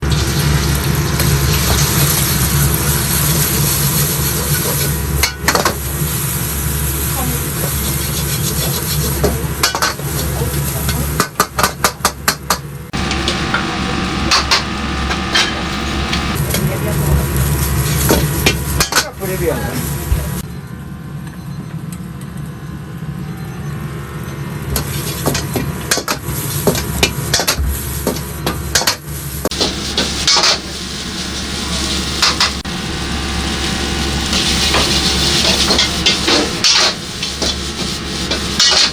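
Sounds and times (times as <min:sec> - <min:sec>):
gas wok burner and exhaust hood: 0:00.0 - 0:38.9
kitchen low roar: 0:00.0 - 0:38.9
low hum: 0:12.8 - 0:18.8.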